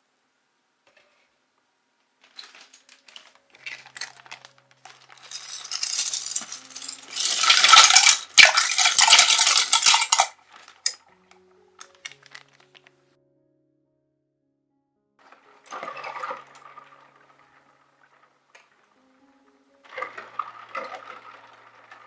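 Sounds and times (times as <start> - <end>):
small hard pieces clattering: 2.2 - 11.0, 11.8 - 12.8.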